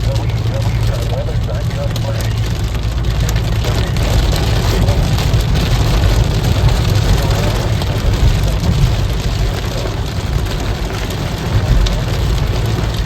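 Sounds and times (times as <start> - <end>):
heavy rain hitting a car: 0.0 - 13.0
low road and engine rumble: 0.0 - 13.0.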